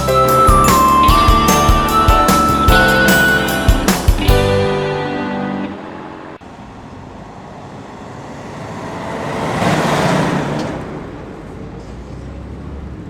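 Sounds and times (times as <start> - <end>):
car passing by: 5.4 - 13.0.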